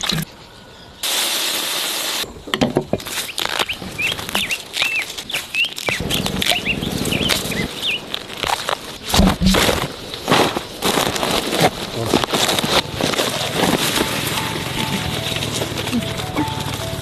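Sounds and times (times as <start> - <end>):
steady hiss: 0.3 - 2.3
small birds chirping: 3.1 - 9.7.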